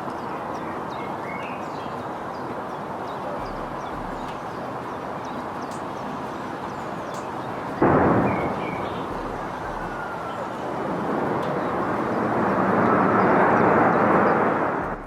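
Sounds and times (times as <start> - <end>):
jet engines roaring: 7.7 - 15.0
loud engine blast: 7.8 - 10.1.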